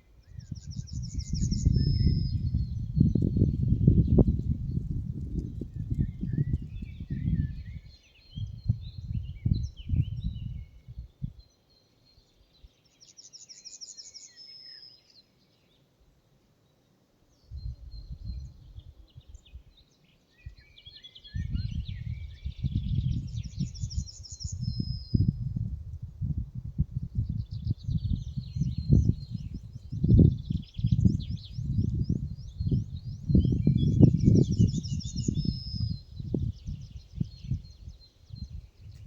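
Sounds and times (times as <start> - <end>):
songbirds singing: 0.0 - 39.0
low gusty rumble: 0.4 - 7.8, 21.4 - 39.0.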